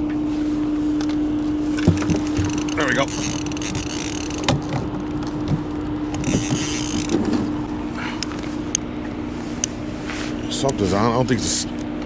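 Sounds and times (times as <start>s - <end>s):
motor hum: 0.0s - 12.0s.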